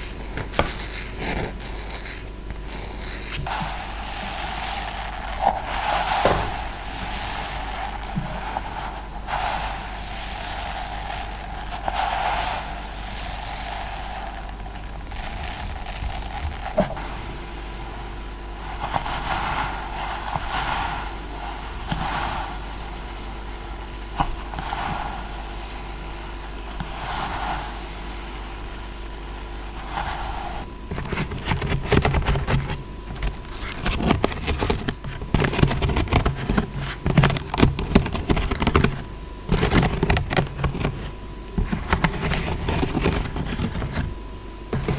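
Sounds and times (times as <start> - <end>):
slow scratching strokes: 0.0 - 30.7.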